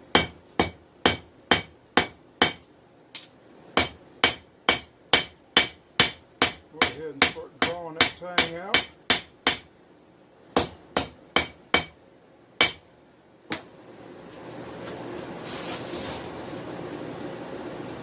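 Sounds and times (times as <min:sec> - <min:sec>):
hammer striking metal on anvil: 0:00.1 - 0:02.7, 0:03.8 - 0:09.7, 0:10.6 - 0:12.0, 0:12.6 - 0:12.8.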